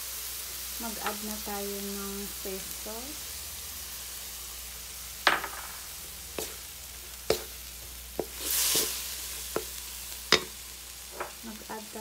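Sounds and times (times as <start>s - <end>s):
food sizzling in a pan: 0.0s - 12.0s
wooden spatula knocking pan: 5.3s - 5.8s, 10.3s - 10.6s.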